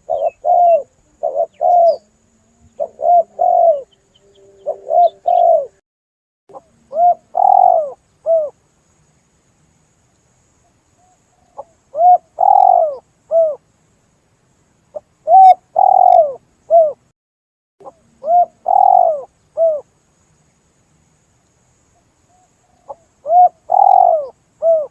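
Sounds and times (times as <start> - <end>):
dove cooing: 0.0 - 5.8, 6.5 - 8.6, 11.6 - 13.6, 15.2 - 17.0, 17.8 - 19.8, 22.3 - 24.9.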